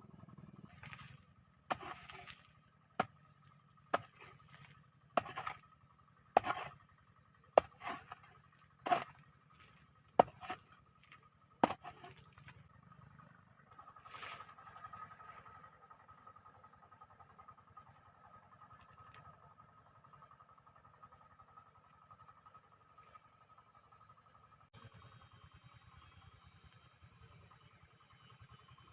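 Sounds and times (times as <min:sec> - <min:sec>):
hand tool chopping: 0:01.7 - 0:02.4, 0:03.9 - 0:05.6, 0:06.4 - 0:06.8, 0:07.6 - 0:09.2, 0:10.2 - 0:10.8, 0:11.6 - 0:12.2.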